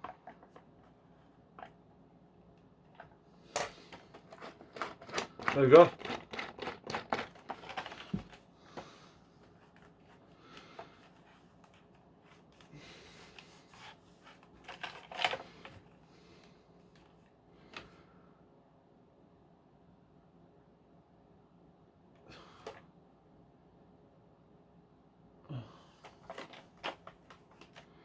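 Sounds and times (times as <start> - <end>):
hard plastic clicks and rattles: 2.9 - 8.4
plastic parts clattering: 2.9 - 8.4, 14.6 - 15.8, 26.0 - 27.8.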